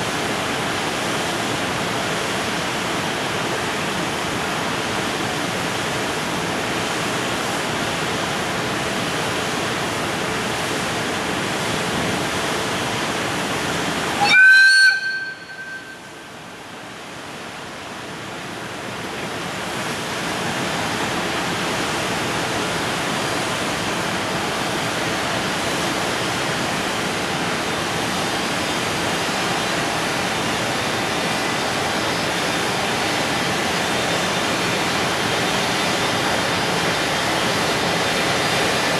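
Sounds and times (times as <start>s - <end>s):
freight train rolling past: 0.1s - 38.9s
train horn blast: 14.2s - 16.4s.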